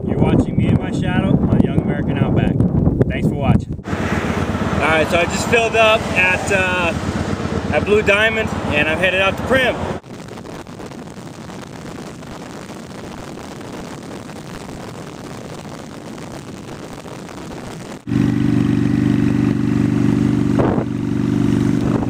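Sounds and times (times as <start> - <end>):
wind and road noise: 0.0 - 22.0
motorcycle engine running: 3.8 - 11.3, 18.0 - 22.0.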